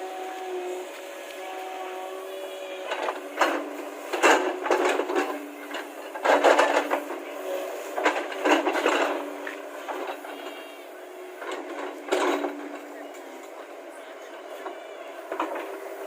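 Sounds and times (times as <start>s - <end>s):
excavator machine hum: 0.0s - 16.0s
scraping and clanking: 2.9s - 10.7s, 11.4s - 12.9s.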